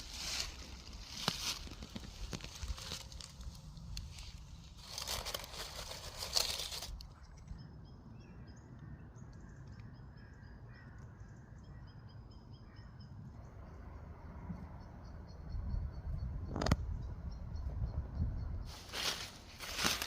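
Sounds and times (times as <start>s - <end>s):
rustling handling noise: 0.0s - 7.3s, 18.7s - 20.0s.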